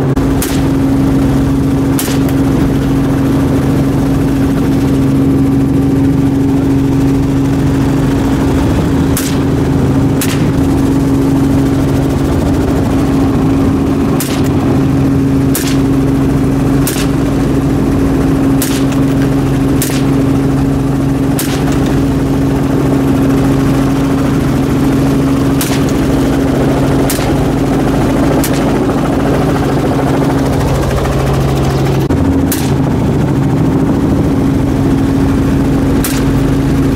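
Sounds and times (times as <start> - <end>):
helicopter rotor drone: 0.0 - 36.9
gunshots: 0.3 - 0.9, 1.9 - 2.5, 8.8 - 10.9, 14.1 - 14.7, 15.4 - 16.1, 16.8 - 17.5, 18.5 - 20.3, 21.3 - 22.1, 25.5 - 26.2, 26.9 - 27.6, 28.3 - 28.9, 32.4 - 33.0, 36.0 - 36.5.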